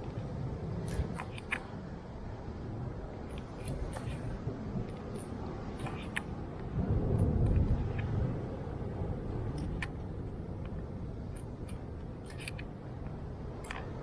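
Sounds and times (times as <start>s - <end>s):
wind buffeting microphone: 0.0s - 14.0s
handling clicks and ticks: 0.8s - 1.7s, 3.3s - 8.2s, 9.5s - 10.0s, 10.6s - 14.0s.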